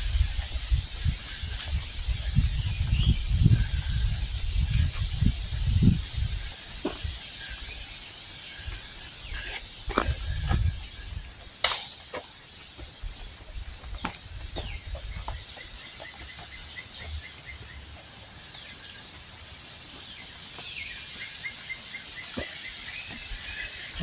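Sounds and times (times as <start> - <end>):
steady high hiss: 18.3 - 24.0.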